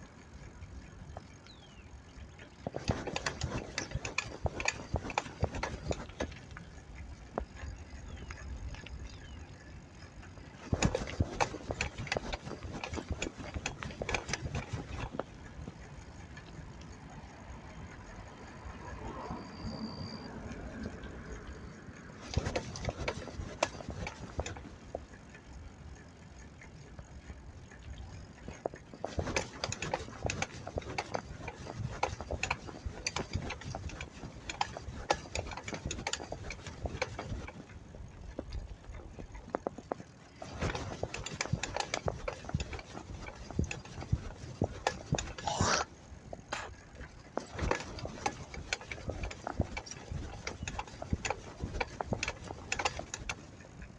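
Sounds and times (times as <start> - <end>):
bicycle rattling and clicking: 0.0 - 53.9
bicycle squeal: 18.8 - 20.5, 45.3 - 46.0.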